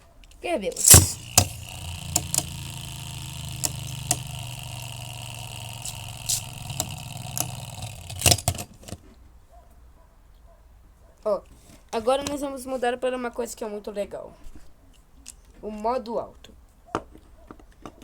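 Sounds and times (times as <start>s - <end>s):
sharp clicks: 0.8s - 8.8s
spinning top whirring: 0.8s - 8.8s.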